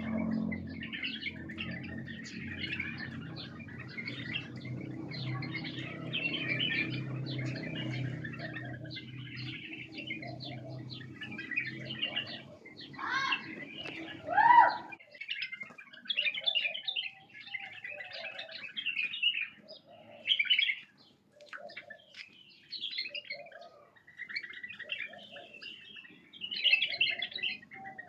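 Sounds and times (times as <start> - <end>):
low steady hum: 0.0 - 6.1
birds chirping and chattering: 0.0 - 28.0.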